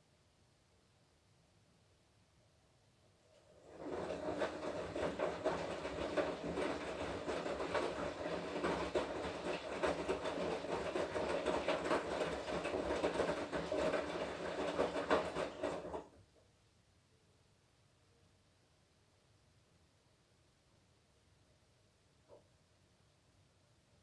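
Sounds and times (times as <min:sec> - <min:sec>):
washing machine churning: 0:03.4 - 0:16.2.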